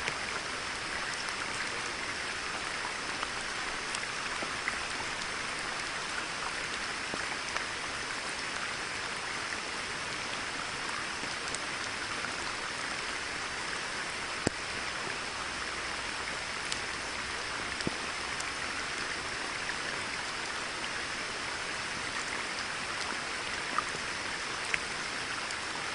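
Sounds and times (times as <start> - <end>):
rain falling on a pond: 0.0 - 25.9.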